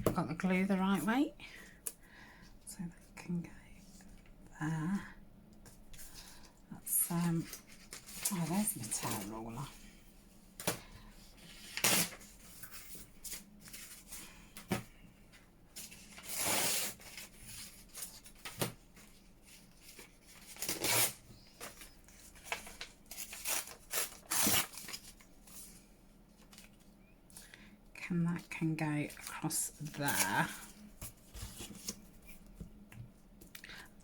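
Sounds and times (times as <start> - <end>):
paper rustling: 29.1 - 32.6.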